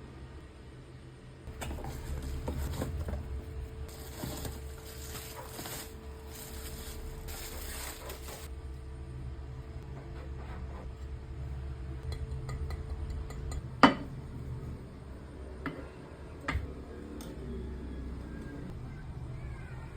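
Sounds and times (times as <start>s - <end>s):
packaging crinkling and rustling: 3.9s - 8.5s.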